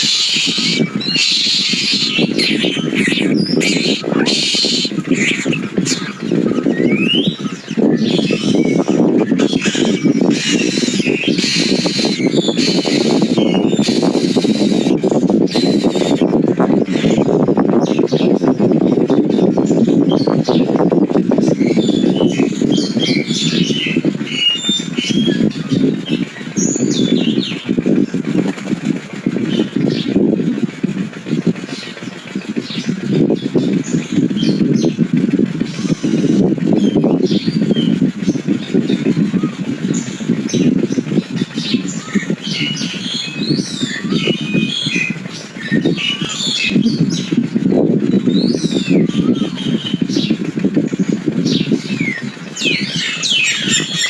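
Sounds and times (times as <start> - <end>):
bird whistles and squawks: 0.0 - 17.2, 21.6 - 27.6
low background rumble: 0.0 - 54.0.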